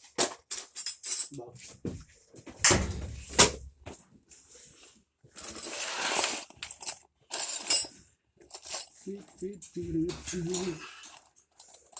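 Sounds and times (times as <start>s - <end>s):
metal tools clattering: 5.4s - 11.9s.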